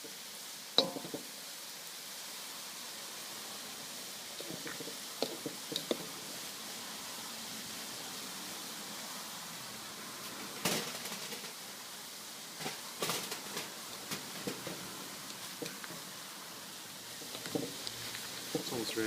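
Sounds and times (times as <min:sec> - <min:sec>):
noodles sizzling in hot oil: 0:00.0 - 0:19.0
oil clicks and pops: 0:17.2 - 0:18.7.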